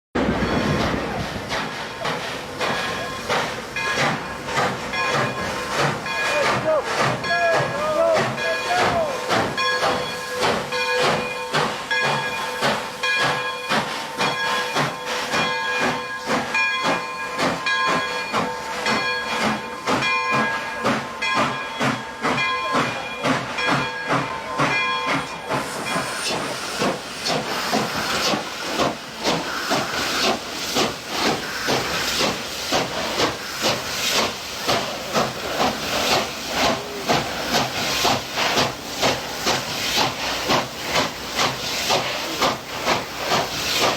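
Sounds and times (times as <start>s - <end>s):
steam hissing: 0.2s - 43.9s
steam locomotive chuffing: 0.2s - 43.9s
chime steam whistle: 4.9s - 26.8s.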